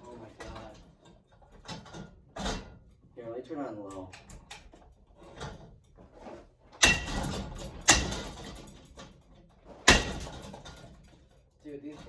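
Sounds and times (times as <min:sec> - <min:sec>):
fan blade hard strikes ringing: 0:06.8 - 0:08.4, 0:09.9 - 0:10.4.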